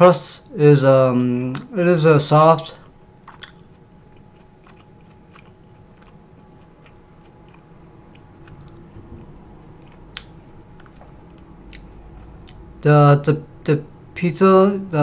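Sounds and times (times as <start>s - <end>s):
person chewing with mouth clicks: 3.2s - 12.6s.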